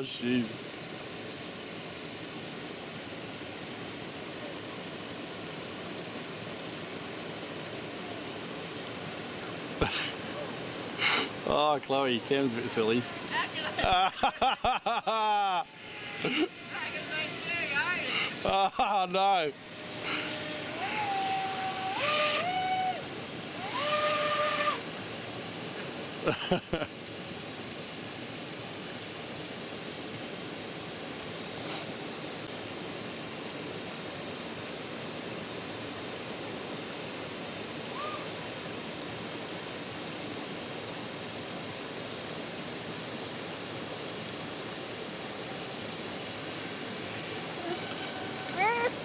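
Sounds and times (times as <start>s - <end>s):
water rushing over waterfall: 0.0s - 49.0s
electric motor whining: 15.7s - 18.5s, 19.5s - 24.9s, 47.2s - 49.0s.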